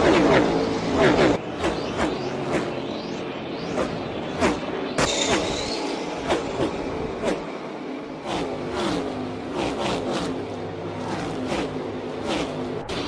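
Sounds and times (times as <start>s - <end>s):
race cars passing at full throttle: 0.0s - 13.0s.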